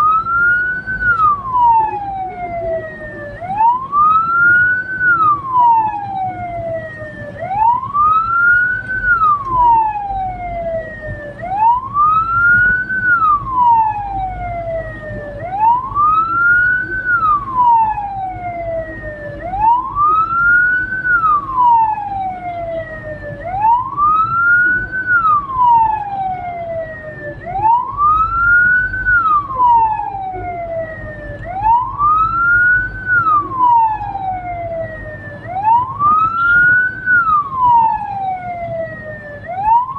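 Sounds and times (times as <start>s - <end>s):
electronic siren wailing: 0.0s - 39.9s
low vehicle hum: 0.0s - 39.9s.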